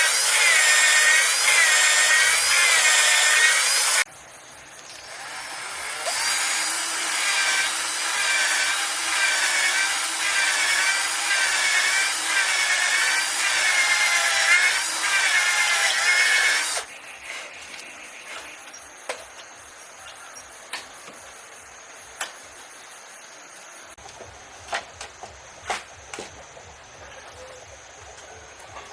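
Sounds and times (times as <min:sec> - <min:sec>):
hand saw cutting wood: 0:00.0 - 0:04.1, 0:05.0 - 0:17.5.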